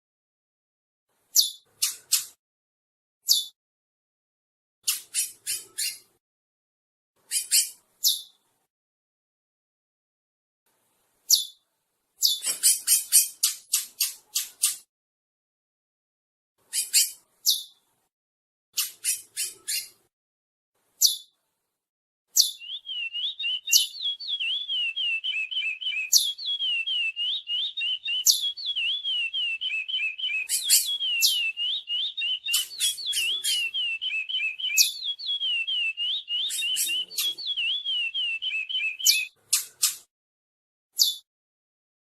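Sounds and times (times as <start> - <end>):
sharp high bird chirps: 1.4 - 2.4, 3.3 - 3.6, 4.8 - 6.1, 7.3 - 8.4, 11.3 - 11.6, 12.2 - 14.9, 16.7 - 17.8, 18.8 - 20.0, 21.0 - 21.3, 22.4 - 40.1, 41.0 - 41.3.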